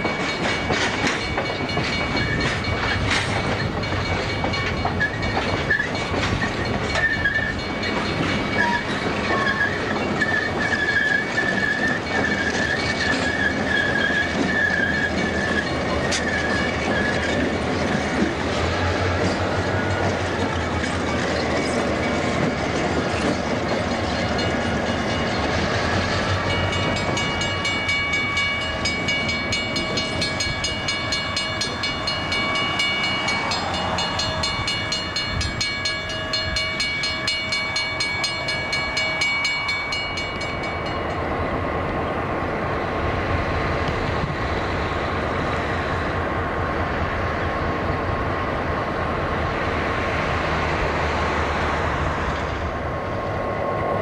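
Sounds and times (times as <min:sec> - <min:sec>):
wheels on rails clickety-clack: 0:00.0 - 0:41.4
diesel locomotive engine rumbling: 0:00.0 - 0:54.0
high wheel squeal: 0:04.8 - 0:07.8, 0:08.4 - 0:17.5.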